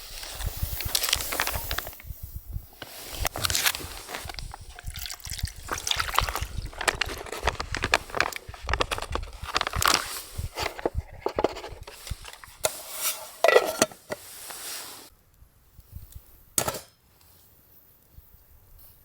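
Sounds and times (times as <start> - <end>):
utensils clinking against pot: 13.0 - 14.2.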